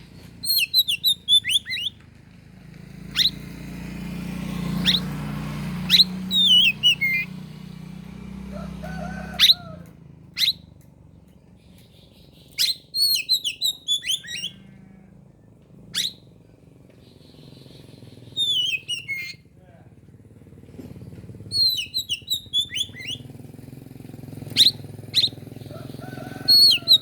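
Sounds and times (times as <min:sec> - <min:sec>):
bird singing whistles and warbles: 0:00.4 - 0:02.0, 0:03.1 - 0:03.5, 0:04.6 - 0:07.5, 0:09.4 - 0:09.7, 0:10.3 - 0:10.7, 0:11.6 - 0:14.6, 0:15.9 - 0:16.3, 0:16.9 - 0:19.5, 0:21.5 - 0:23.3, 0:24.4 - 0:27.0.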